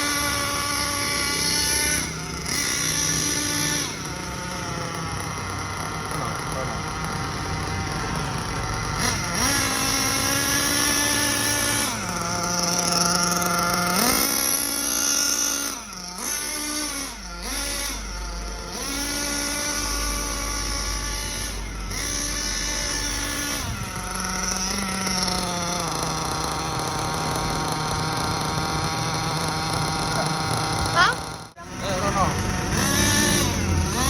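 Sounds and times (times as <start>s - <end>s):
small nitro engine running: 0.0s - 34.0s.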